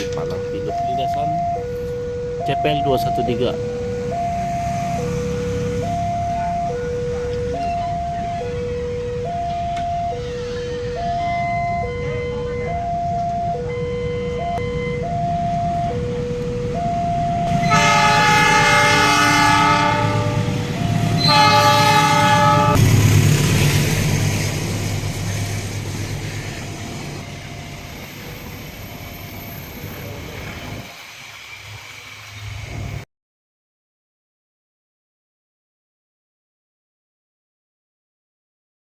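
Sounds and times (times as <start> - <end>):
level crossing alarm two-note: 2.4 - 22.8
train rumbling past: 3.0 - 33.0
train horn blasts: 17.5 - 22.8.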